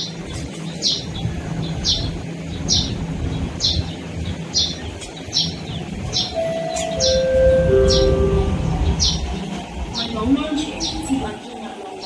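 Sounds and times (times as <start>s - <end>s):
train rumbling: 0.0s - 12.0s
bird chirping: 4.6s - 9.3s.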